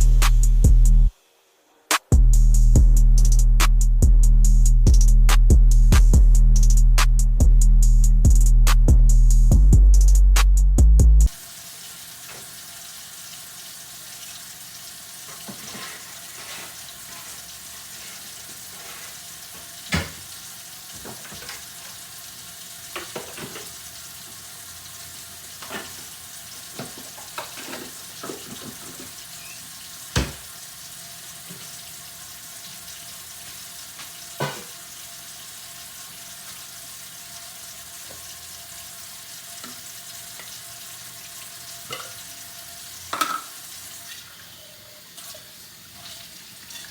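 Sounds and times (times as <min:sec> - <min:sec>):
tap water running into sink: 0:11.3 - 0:44.4
dishes clinking and knocking: 0:26.8 - 0:29.1, 0:34.4 - 0:34.8, 0:43.1 - 0:43.6.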